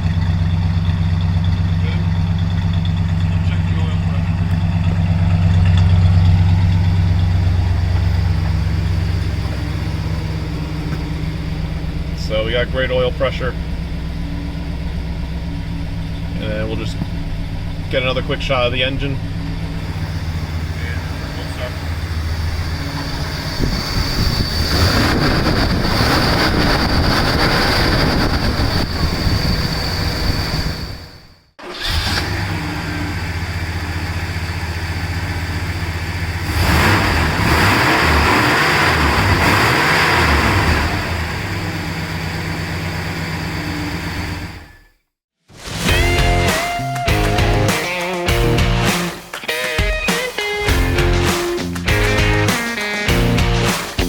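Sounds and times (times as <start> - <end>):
car engine idling: 0.0 - 37.6, 38.9 - 44.8
rushing noise: 17.2 - 32.2, 45.5 - 49.3.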